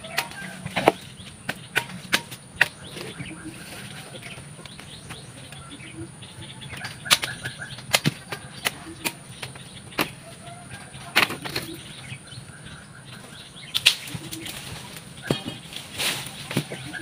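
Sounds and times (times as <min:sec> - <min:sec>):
branches cracking and swishing: 0:13.2 - 0:17.0.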